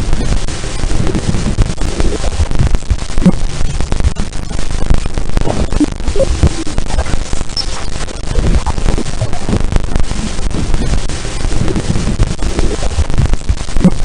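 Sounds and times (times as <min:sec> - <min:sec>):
crackling static: 0:00.0 - 0:14.0
low rumble: 0:00.0 - 0:14.0.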